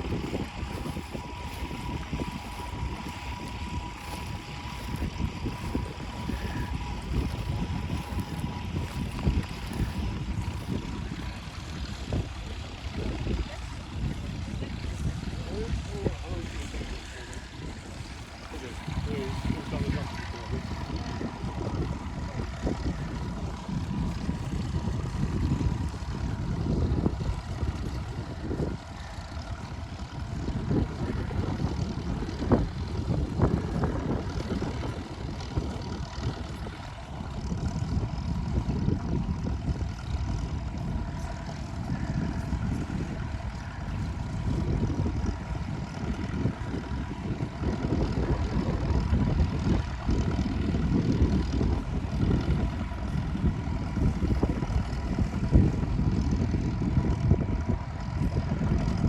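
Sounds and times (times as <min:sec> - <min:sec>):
ploughing machinery rumbling: 0:00.0 - 0:59.0.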